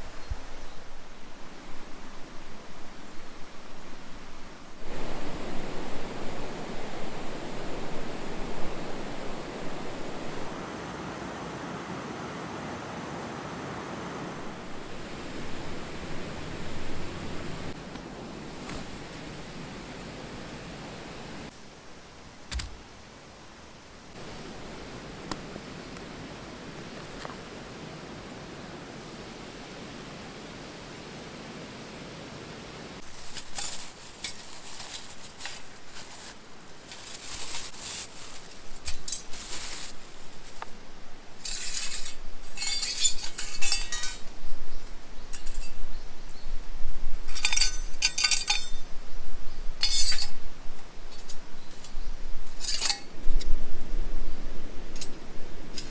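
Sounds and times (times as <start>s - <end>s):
steady soft hiss: 0.0s - 55.9s
metal cookware clinking: 41.4s - 44.4s, 47.3s - 48.9s, 49.8s - 50.4s, 52.6s - 53.1s.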